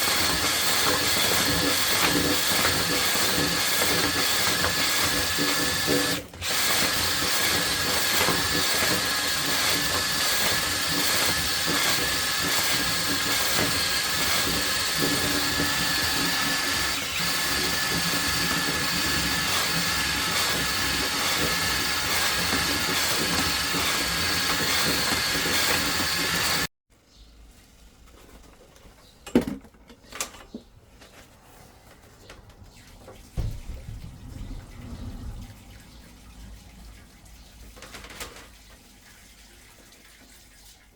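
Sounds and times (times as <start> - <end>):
drain cleaning machine whining: 0.0 - 26.7
low rumble: 33.5 - 36.6.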